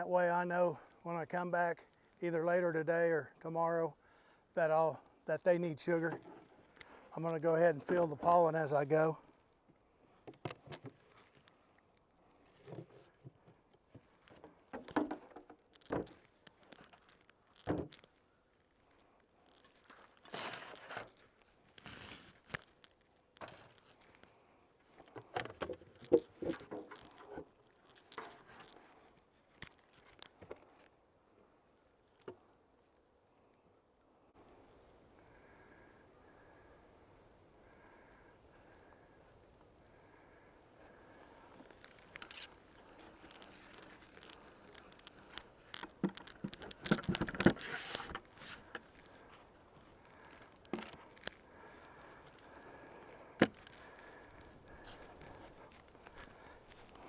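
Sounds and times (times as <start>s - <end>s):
rustling and crinkling: 9.2s - 31.0s, 39.9s - 57.0s.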